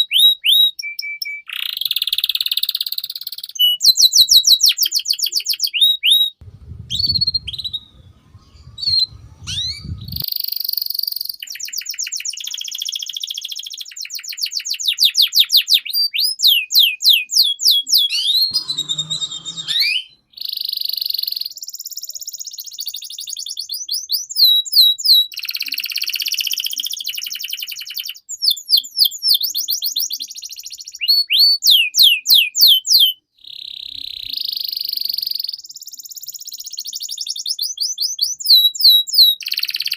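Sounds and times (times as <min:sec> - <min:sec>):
canary singing: 0:00.0 - 0:35.6, 0:36.8 - 0:39.9
low rumble: 0:06.4 - 0:10.2.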